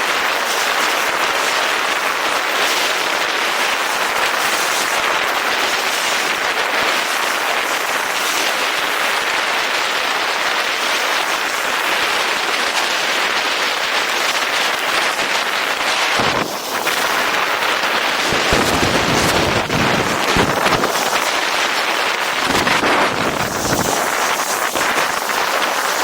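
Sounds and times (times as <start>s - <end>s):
wind on microphone: 12.6s - 26.0s
snowboard scraping over snow: 15.4s - 26.0s.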